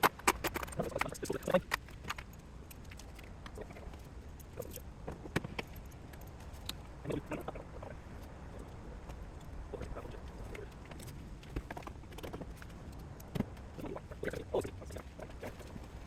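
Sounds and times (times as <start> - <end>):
metal tools clicking and clinking: 0.0 - 3.3.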